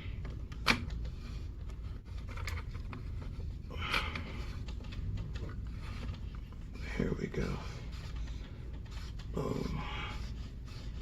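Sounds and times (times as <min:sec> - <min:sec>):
low steady hum: 0:00.0 - 0:11.0
air rifle parts being fitted: 0:00.2 - 0:06.6.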